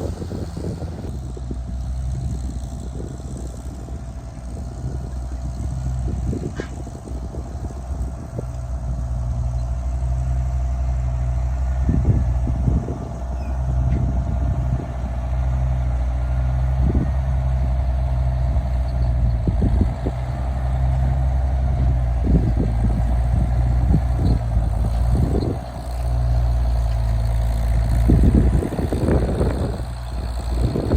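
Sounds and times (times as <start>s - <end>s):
vehicle engine running: 0.0s - 30.9s
clunks and rattles: 11.0s - 30.9s.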